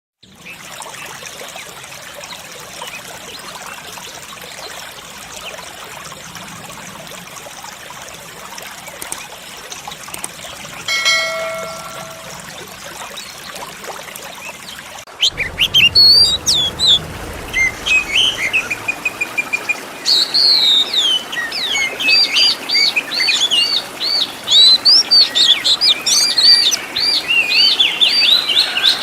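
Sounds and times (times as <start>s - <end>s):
water trickling: 0.2s - 27.7s
bell-like chime: 10.9s - 12.5s.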